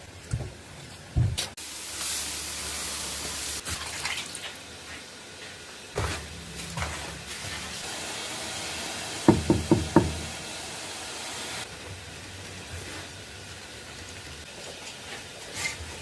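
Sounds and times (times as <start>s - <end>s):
sharp knocks: 9.3s - 10.3s.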